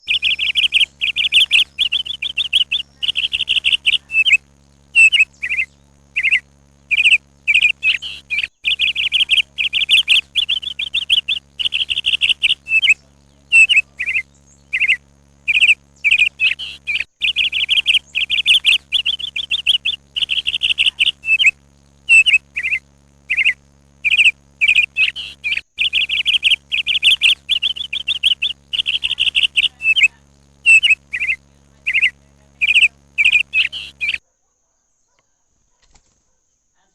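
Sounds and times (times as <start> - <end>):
small birds chirping: 0.0 - 34.2.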